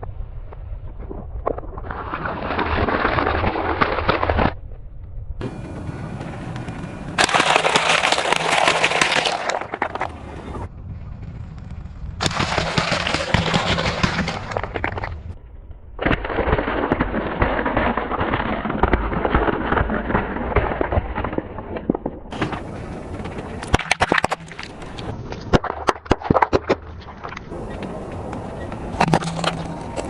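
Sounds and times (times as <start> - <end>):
sharp snaps and cracks: 1.4 - 5.2, 6.5 - 10.2, 11.3 - 15.4
tyre crushing brittle objects: 1.9 - 4.6, 7.2 - 10.1, 12.2 - 15.2, 29.0 - 30.0.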